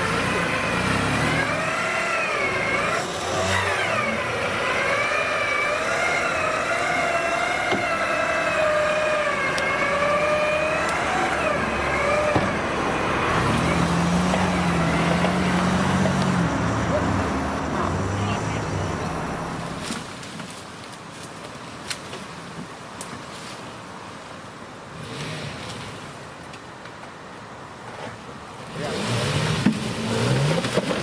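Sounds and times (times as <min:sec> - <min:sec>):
car engine revving: 0:00.0 - 0:20.0, 0:28.6 - 0:31.0.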